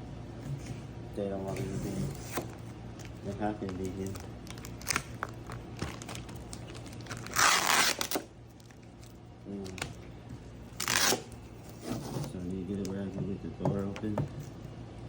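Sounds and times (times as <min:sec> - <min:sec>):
crackles and clicks of handling: 0:02.4 - 0:07.4, 0:08.0 - 0:10.1, 0:12.2 - 0:13.2
packing material tearing: 0:03.0 - 0:10.0, 0:10.7 - 0:11.8.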